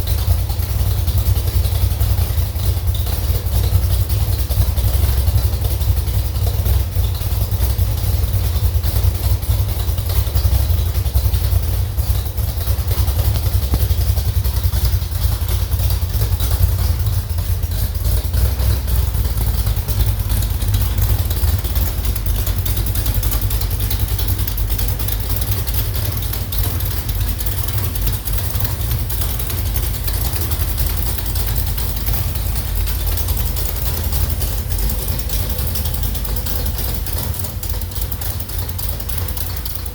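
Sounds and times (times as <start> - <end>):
engine running on test stand: 0.0 - 39.9.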